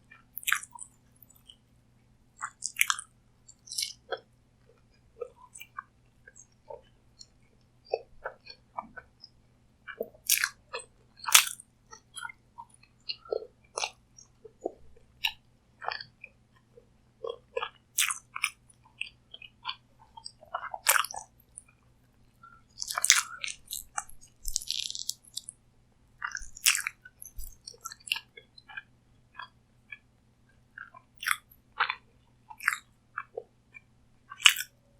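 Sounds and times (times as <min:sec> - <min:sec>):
close-miked chewing and biting: 0:00.4 - 0:01.5, 0:02.4 - 0:03.0, 0:03.6 - 0:04.2, 0:09.9 - 0:12.3, 0:13.1 - 0:16.1, 0:17.2 - 0:21.6, 0:22.7 - 0:25.5, 0:26.2 - 0:30.0, 0:30.8 - 0:33.5, 0:34.3 - 0:34.8
crisp food crackling: 0:20.2 - 0:21.3, 0:22.7 - 0:25.5, 0:26.2 - 0:28.3.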